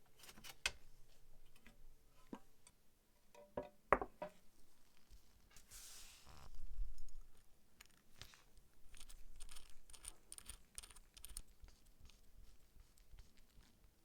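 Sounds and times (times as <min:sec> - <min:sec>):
light clicks and scrapes: 0:04.9 - 0:13.8.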